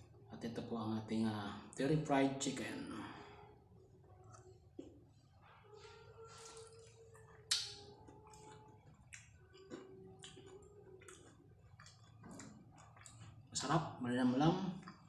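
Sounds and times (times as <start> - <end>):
chewing crispy fried chicken: 4.0 - 14.0, 14.7 - 15.0.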